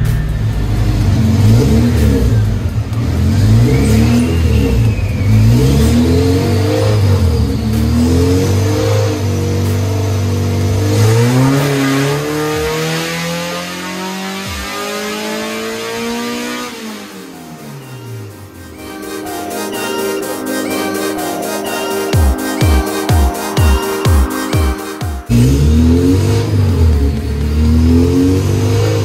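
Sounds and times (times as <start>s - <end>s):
car engine revving hard: 0.0s - 19.2s, 25.3s - 29.0s.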